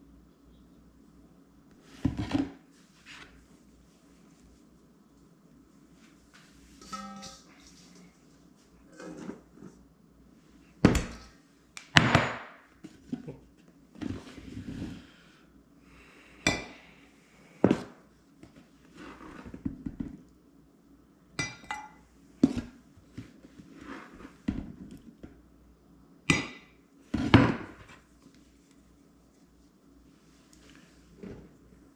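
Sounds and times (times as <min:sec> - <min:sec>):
dishes and pans clanking: 0:06.8 - 0:08.1.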